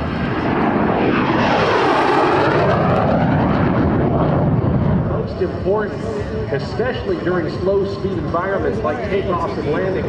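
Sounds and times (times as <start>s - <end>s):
jet fighter passing: 0.0s - 6.5s.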